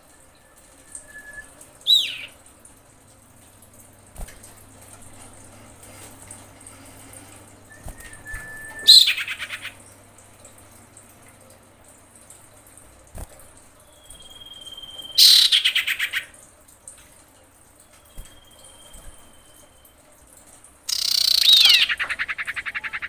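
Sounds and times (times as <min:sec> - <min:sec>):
low steady hum: 0:00.0 - 0:23.0
iora bird calling: 0:00.9 - 0:02.4, 0:07.8 - 0:09.8, 0:14.1 - 0:16.4, 0:20.9 - 0:23.0.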